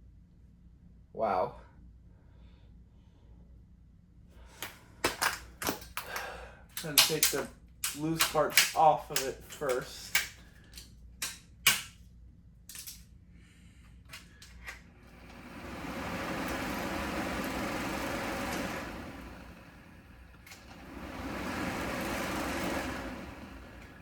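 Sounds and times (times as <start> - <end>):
fan blowing air: 4.4 - 11.9, 13.7 - 24.0
plastic parts clicking and knocking: 4.6 - 12.0, 12.7 - 13.0.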